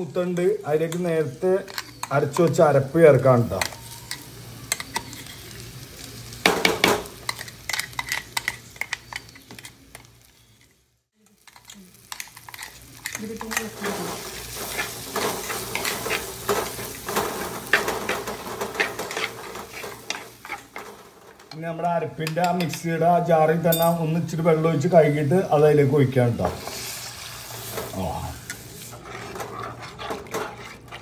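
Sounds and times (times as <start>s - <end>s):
food sizzling in a pot: 0.0s - 31.0s
metal spatula scraping a pot: 1.6s - 2.5s, 11.3s - 21.6s, 26.5s - 31.0s.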